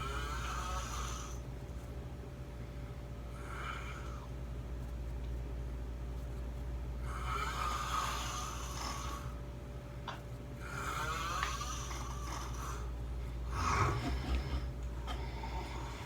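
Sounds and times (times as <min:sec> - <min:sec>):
person snoring: 0:00.0 - 0:01.4, 0:07.0 - 0:09.4, 0:10.6 - 0:16.0
steady low hum: 0:00.0 - 0:16.0.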